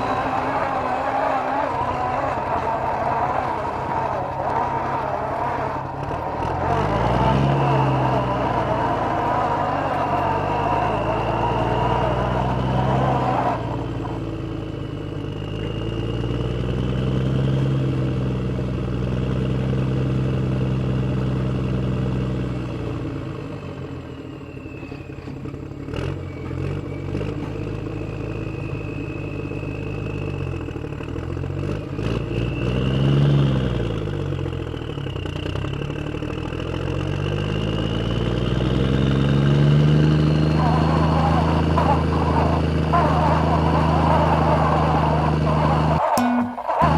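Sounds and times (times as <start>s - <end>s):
vehicle engines revving: 0.0s - 46.9s
thin high whine: 40.6s - 46.9s.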